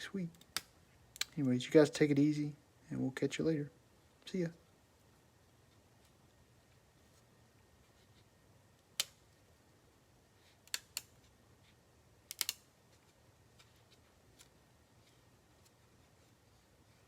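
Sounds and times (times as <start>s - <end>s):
faint room hiss: 0.0s - 17.0s
sharp clicks: 12.3s - 12.6s.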